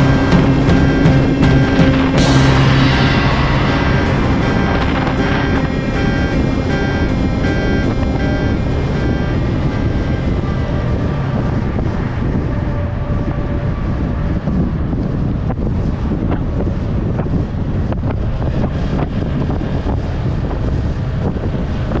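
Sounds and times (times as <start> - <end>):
motorcycle engine running: 0.0 - 13.7
wind rushing on microphone: 0.0 - 22.0.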